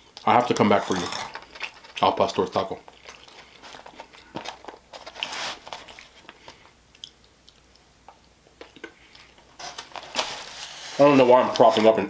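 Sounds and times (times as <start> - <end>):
mouth chewing: 2.8 - 4.4.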